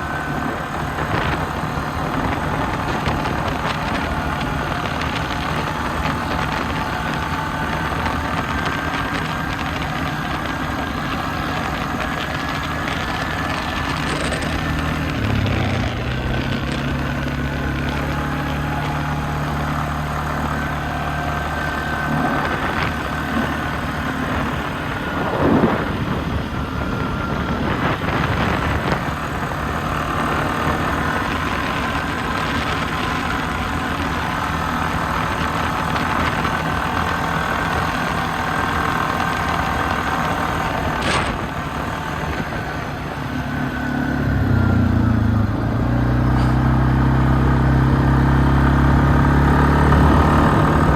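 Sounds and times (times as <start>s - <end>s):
atv engine running and revving: 0.0s - 50.9s.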